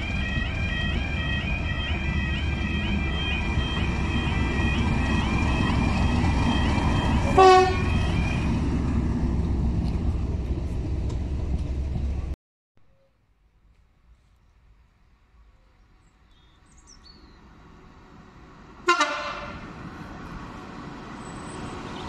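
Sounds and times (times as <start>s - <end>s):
crossing alarm warbling: 0.0s - 8.6s
train rumbling: 0.0s - 12.4s, 14.1s - 22.0s
train horn blast: 6.1s - 8.5s, 18.8s - 19.7s.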